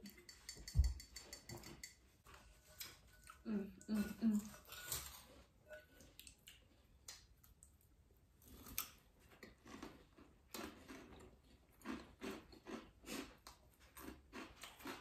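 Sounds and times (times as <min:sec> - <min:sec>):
crunchy snack chewing: 0:08.4 - 0:15.0.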